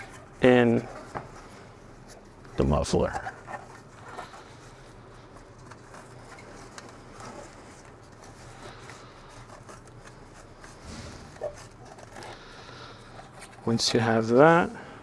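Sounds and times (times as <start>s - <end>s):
packing material rustling: 0.0s - 14.8s.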